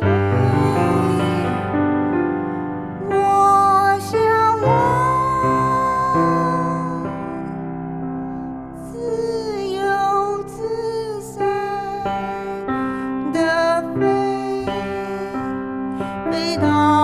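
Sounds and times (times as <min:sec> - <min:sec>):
woman singing: 0:00.0 - 0:01.7, 0:03.0 - 0:07.6, 0:08.9 - 0:17.0
piano or keyboard backing: 0:00.0 - 0:17.0.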